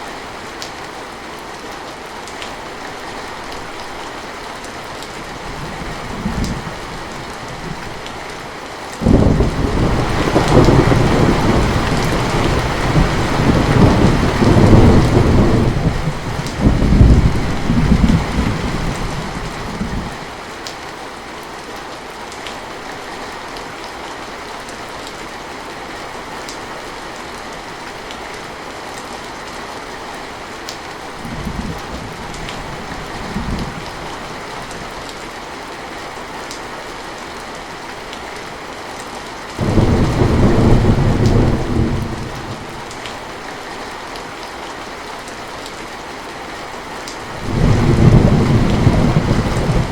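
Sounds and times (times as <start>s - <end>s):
heavy rain falling: 0.0s - 49.9s
low rumble of thunder: 9.0s - 20.2s, 31.2s - 34.4s, 39.6s - 43.0s, 47.4s - 49.9s.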